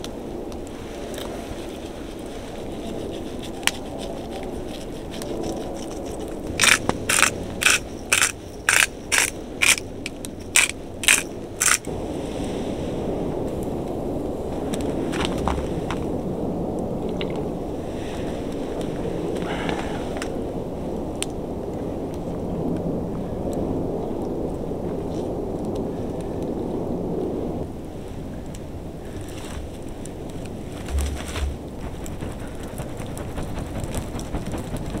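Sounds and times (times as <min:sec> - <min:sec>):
low rushing background: 0:00.0 - 0:24.7, 0:26.5 - 0:35.0
footsteps crunching in snow: 0:30.6 - 0:33.8.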